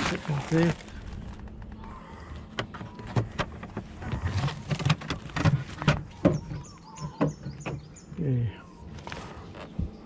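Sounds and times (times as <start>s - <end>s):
items clicking and knocking in fridge: 0.0s - 7.9s.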